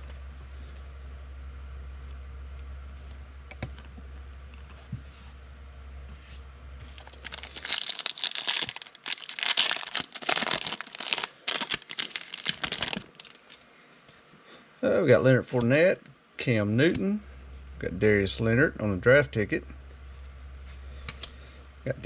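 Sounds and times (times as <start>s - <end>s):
foil wrapper tearing and crinkling: 6.9s - 13.6s.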